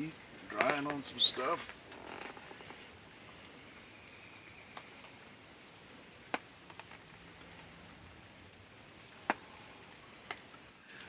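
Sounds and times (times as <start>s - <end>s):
rain falling: 0.0s - 11.0s
sharp ticks of raindrops: 0.0s - 11.0s.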